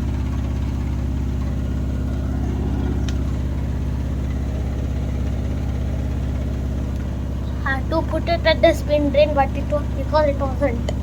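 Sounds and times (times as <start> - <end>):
washing machine spinning: 0.0 - 11.0.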